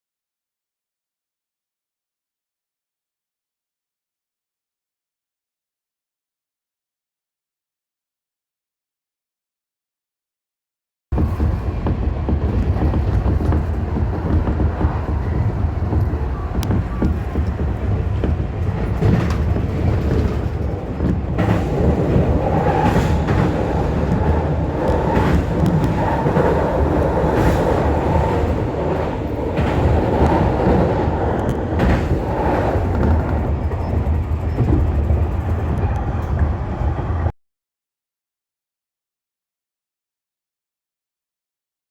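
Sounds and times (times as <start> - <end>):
train rumble inside car: 11.1 - 37.4
wheel clacks over rail joints: 11.2 - 36.5.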